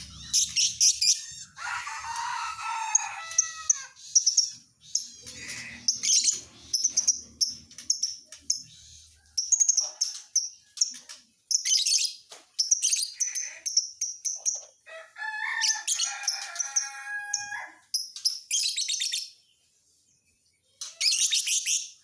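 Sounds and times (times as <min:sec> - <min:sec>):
lovebird chirping: 0:00.0 - 0:01.6, 0:03.6 - 0:14.6.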